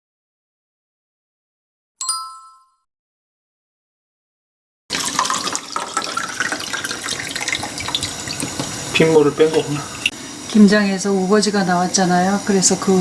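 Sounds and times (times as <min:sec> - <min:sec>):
bright chime: 0:02.0 - 0:02.8
tap running water into sink: 0:04.9 - 0:10.6.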